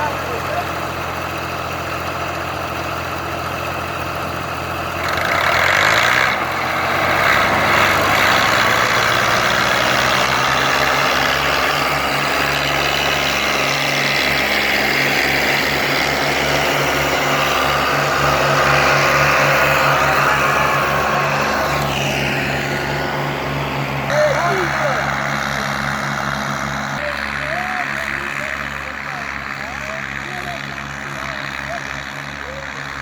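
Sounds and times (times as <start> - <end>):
tractor diesel engine revving: 0.0 - 33.0.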